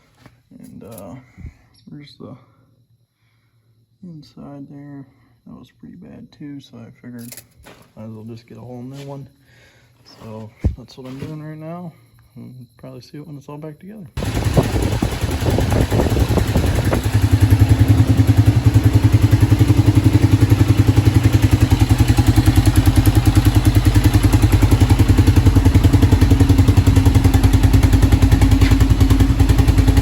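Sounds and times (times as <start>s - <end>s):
person speaking: 10.1s - 14.1s
engine clattering: 14.2s - 30.0s.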